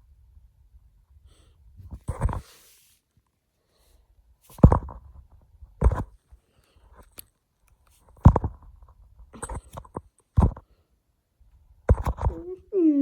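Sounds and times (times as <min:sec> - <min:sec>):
dull knocks and thuds: 0:04.6 - 0:05.1, 0:08.2 - 0:08.6.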